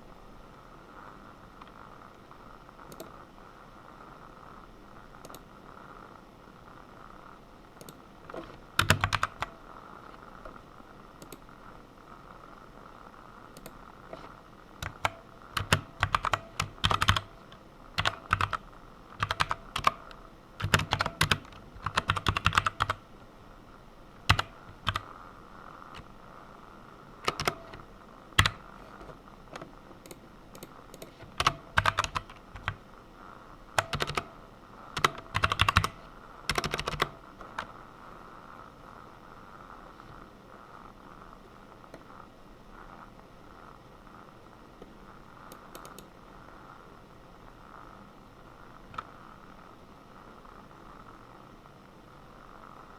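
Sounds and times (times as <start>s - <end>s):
faint steady hum: 0.0s - 52.9s
typing on computer keyboard: 7.8s - 9.6s, 13.6s - 18.6s, 19.2s - 23.0s, 24.3s - 25.1s, 27.2s - 27.8s, 28.4s - 29.1s, 30.0s - 32.8s, 33.8s - 34.4s, 35.0s - 37.7s.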